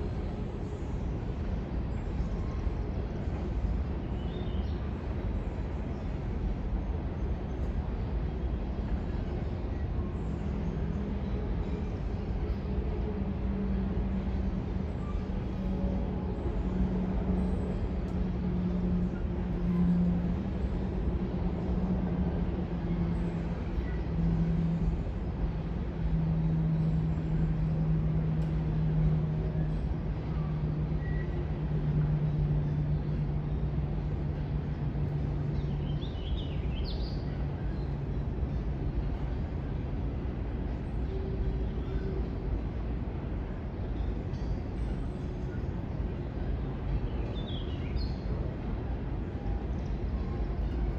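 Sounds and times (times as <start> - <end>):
diesel locomotive engine droning: 0.0 - 50.9.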